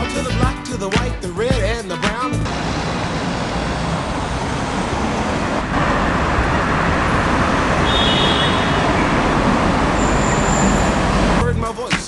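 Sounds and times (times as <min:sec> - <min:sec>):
road traffic rumble: 0:02.3 - 0:11.8.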